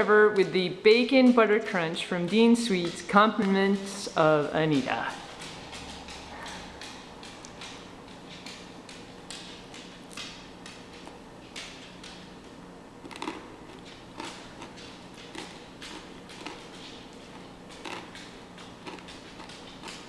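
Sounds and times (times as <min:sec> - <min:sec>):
person chewing crunchy food: 0:13.0 - 0:20.0.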